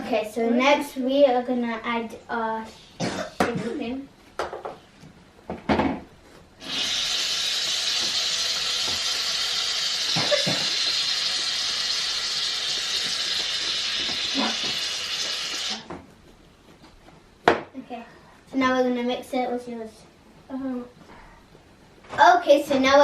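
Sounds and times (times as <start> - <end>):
aerosol can spraying foam: 6.6 - 15.8.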